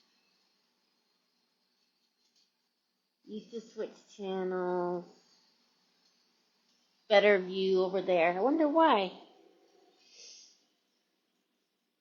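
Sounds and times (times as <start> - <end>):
woman speaking: 3.3 - 5.1, 7.1 - 9.3.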